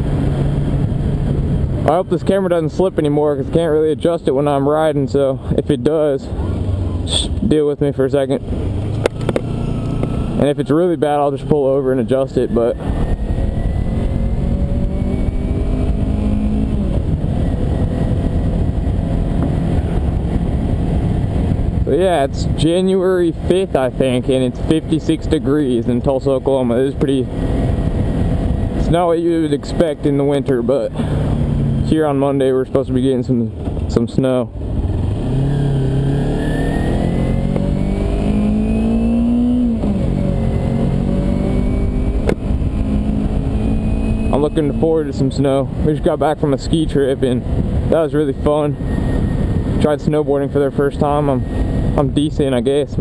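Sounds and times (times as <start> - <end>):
wind rushing over camera: 0.0 - 3.7, 12.1 - 32.0, 33.5 - 53.0
motorcycle engine running: 8.2 - 32.4, 34.5 - 52.1.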